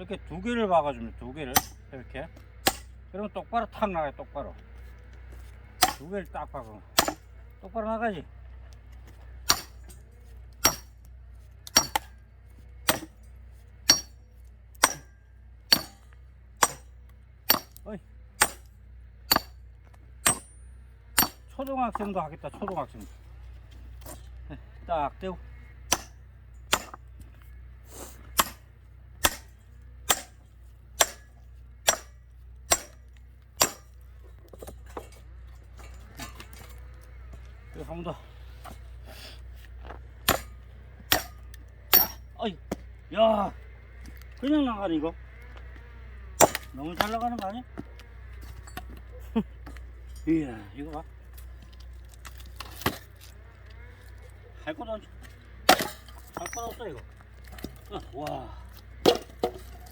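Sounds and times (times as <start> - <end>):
hammer striking steel wedge: 1.6 - 1.8, 2.6 - 2.9, 5.8 - 6.1, 7.0 - 7.3, 9.5 - 10.0, 10.6 - 11.0, 11.7 - 12.2, 12.9 - 13.2, 13.9 - 14.2, 14.8 - 16.0, 16.6 - 16.9, 17.5 - 17.8, 18.4 - 18.7, 19.3 - 19.6, 20.2 - 20.6, 21.2 - 21.5, 25.9 - 27.0, 28.4 - 28.6, 29.2 - 30.4, 31.0 - 33.0, 33.6 - 34.0, 40.2 - 42.2, 46.4 - 47.2, 55.7 - 56.6.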